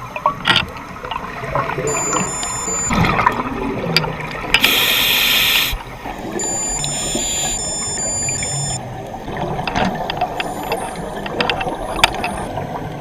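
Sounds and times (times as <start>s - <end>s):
regulator inhalation hiss: 4.6s - 5.8s.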